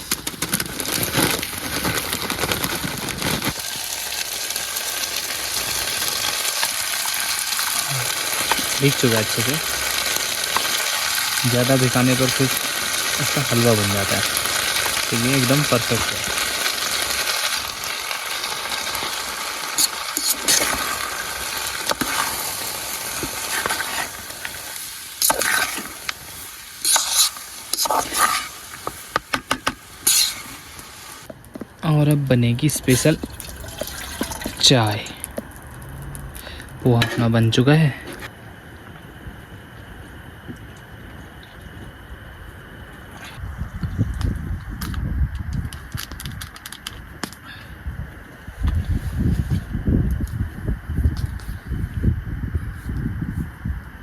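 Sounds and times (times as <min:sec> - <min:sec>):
onions and tomatoes sizzling in a pan: 0:00.0 - 0:31.3
spoon scraping and clinking pan: 0:26.8 - 0:28.6.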